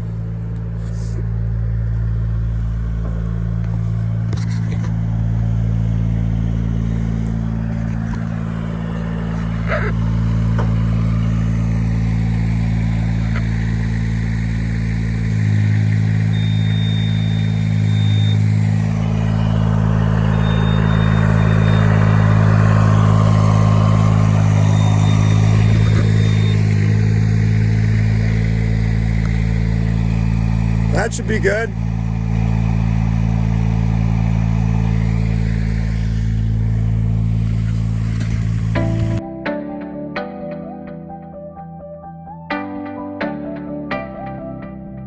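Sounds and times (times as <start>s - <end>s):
engine running: 0.0s - 45.0s
faint high beep: 16.3s - 27.0s.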